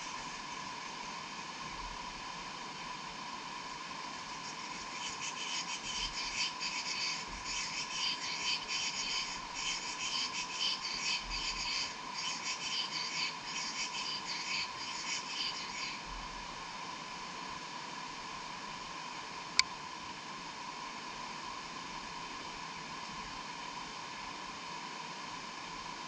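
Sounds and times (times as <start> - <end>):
steady high hum: 0.0 - 26.0
insects chirping: 4.1 - 16.1.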